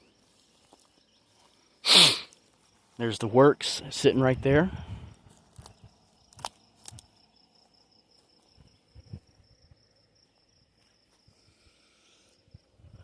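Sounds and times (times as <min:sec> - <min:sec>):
insect trilling: 0:04.6 - 0:10.6.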